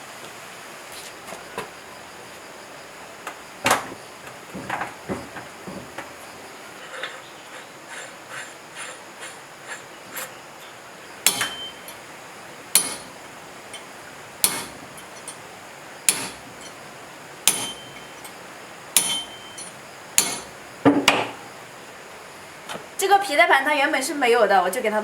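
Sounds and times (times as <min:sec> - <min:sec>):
hammer striking metal: 0:11.2 - 0:12.0, 0:12.7 - 0:15.4, 0:16.1 - 0:16.8, 0:17.4 - 0:18.4, 0:19.0 - 0:21.4.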